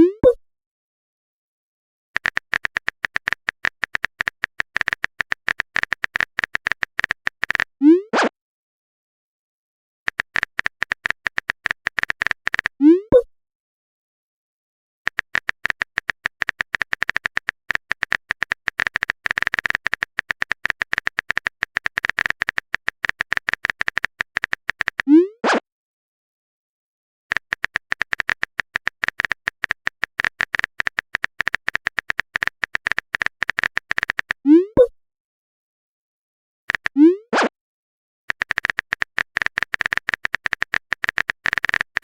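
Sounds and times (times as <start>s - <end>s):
rapid keyboard clicks: 2.2s - 7.8s, 10.1s - 12.8s, 15.1s - 25.1s, 27.3s - 34.4s, 36.7s - 37.0s, 38.3s - 42.0s.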